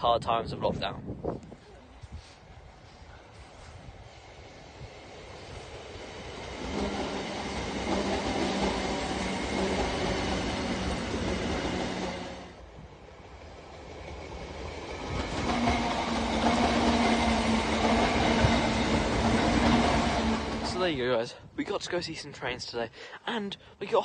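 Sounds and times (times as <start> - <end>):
electric trains passing: 2.5 - 21.1.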